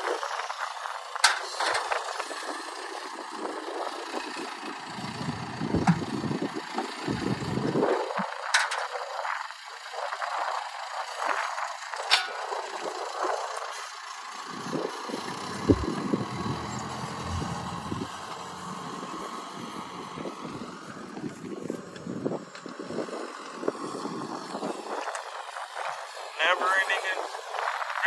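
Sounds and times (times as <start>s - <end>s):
vehicle engine running: 4.8s - 7.8s, 14.3s - 22.5s
wind rumbling on microphone: 4.9s - 8.4s, 14.5s - 26.2s.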